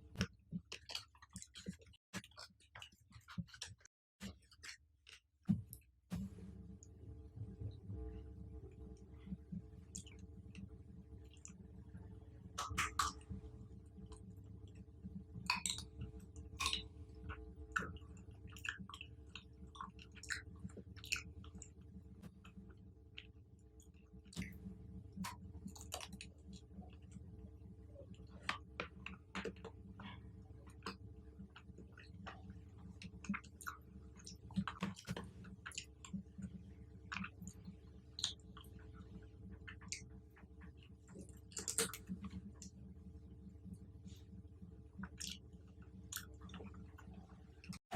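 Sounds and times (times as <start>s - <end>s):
steady low hum: 6.1s - 47.8s
chewing and biting fruit: 15.5s - 21.6s.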